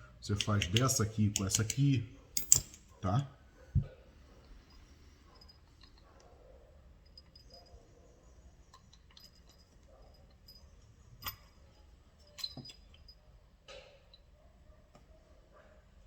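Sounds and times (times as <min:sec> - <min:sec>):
metal parts and tools ticking: 0:00.3 - 0:02.9, 0:04.4 - 0:06.3, 0:07.0 - 0:07.9, 0:08.5 - 0:14.3.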